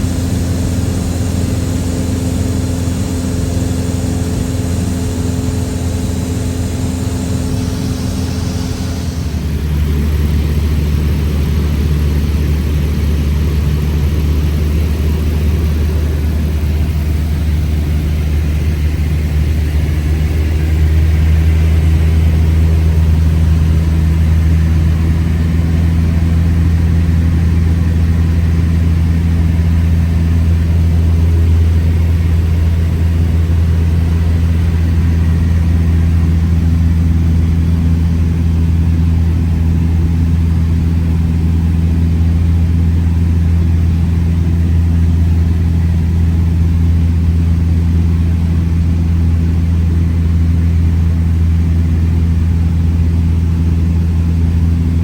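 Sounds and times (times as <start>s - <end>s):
airplane engine droning: 0.0s - 55.0s.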